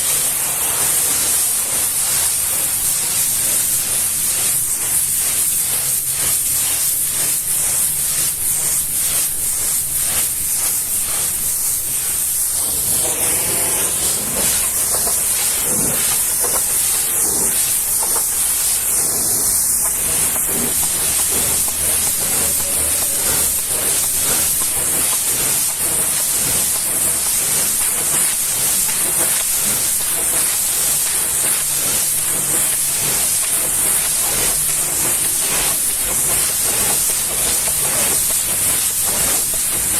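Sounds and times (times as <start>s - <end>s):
pressure washer spraying water: 0.0s - 39.9s.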